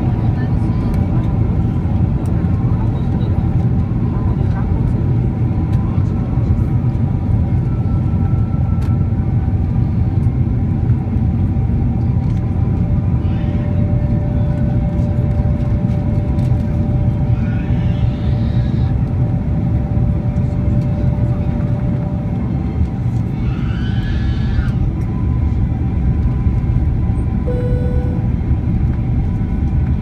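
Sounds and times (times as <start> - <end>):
jet engine and airflow rumble: 0.0 - 30.0
faint whining tones: 27.4 - 28.4.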